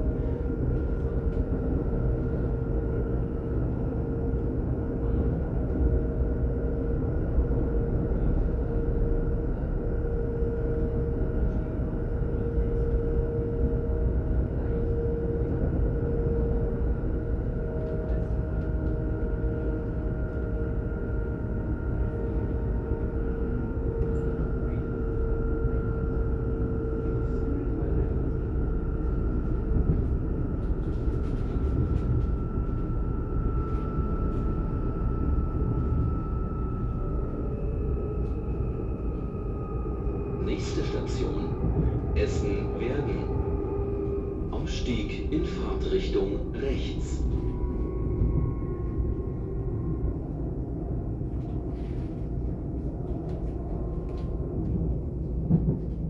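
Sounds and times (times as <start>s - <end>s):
steady train motor whine: 0.1s - 55.7s
train wheels rumbling on track: 23.4s - 56.0s.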